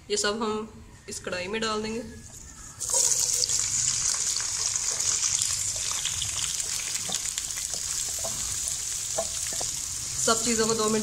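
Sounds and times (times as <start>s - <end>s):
vegetables sizzling in hot oil: 2.8s - 11.0s.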